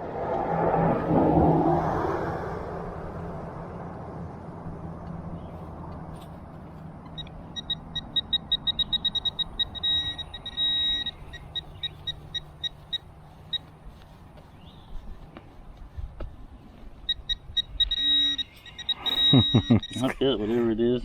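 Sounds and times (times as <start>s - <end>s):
metal detector beeping: 7.0s - 13.8s, 16.9s - 20.4s.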